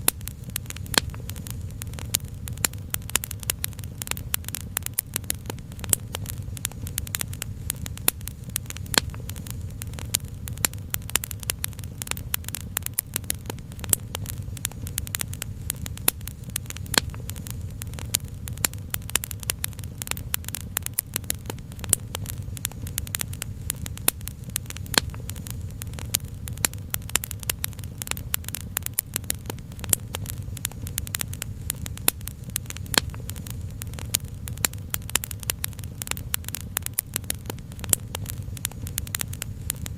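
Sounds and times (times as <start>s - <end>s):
steady low rumble: 0.0s - 39.9s
wood fire crackling: 0.0s - 39.9s.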